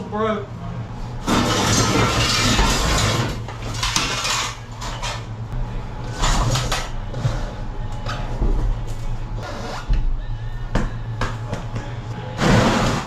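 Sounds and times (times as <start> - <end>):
metal parts clattering: 1.2 - 5.3.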